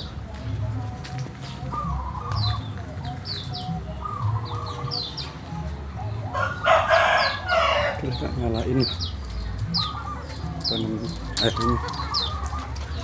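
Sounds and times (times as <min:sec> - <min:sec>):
songbird chirping: 0:00.0 - 0:13.0
chicken clucking: 0:00.8 - 0:13.0
rooster crowing: 0:06.4 - 0:08.0.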